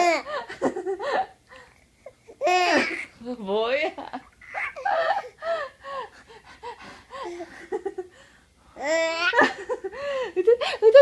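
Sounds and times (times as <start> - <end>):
child laughing: 2.5 - 3.1, 4.3 - 5.6, 9.1 - 9.9.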